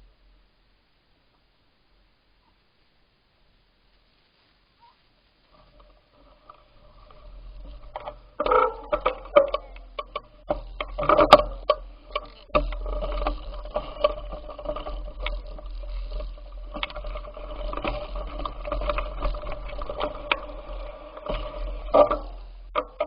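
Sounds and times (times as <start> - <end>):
bicycle hum with rattles and clicks: 5.5 - 23.0
low rumble: 5.8 - 23.0.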